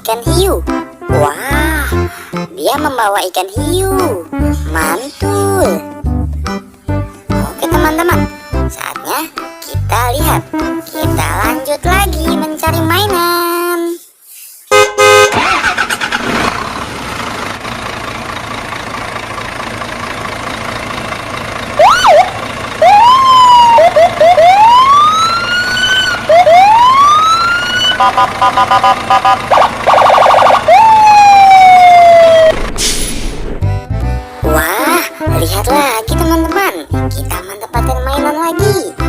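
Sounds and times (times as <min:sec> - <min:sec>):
long falling tone: 0:21.8 - 0:29.0, 0:30.0 - 0:32.7
fast warbling beep: 0:27.6 - 0:30.6.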